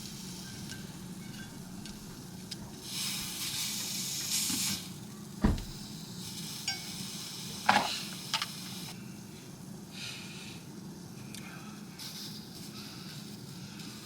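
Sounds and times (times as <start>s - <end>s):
dull knock: 5.4s - 5.9s.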